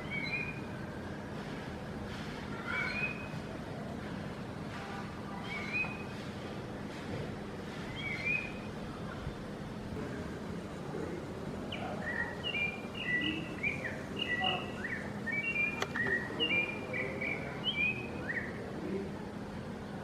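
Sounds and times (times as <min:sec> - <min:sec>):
steady background noise: 0:00.0 - 0:20.0
bird whistling slurred notes: 0:11.6 - 0:18.5
sharp click: 0:15.6 - 0:16.2.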